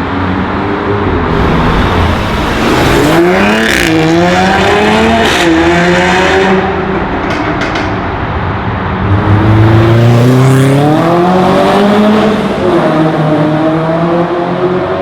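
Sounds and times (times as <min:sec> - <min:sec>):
sports car engine accelerating: 0:09.0 - 0:15.0.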